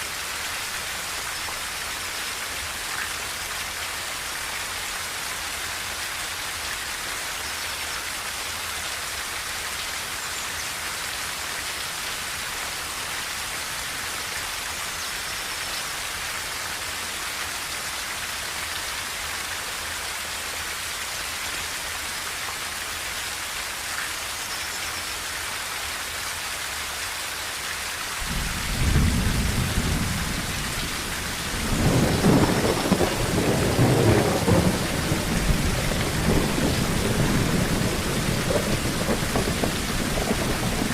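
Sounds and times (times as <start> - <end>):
rain on a tin roof: 0.0 - 40.9
thunder rumble: 28.2 - 40.9.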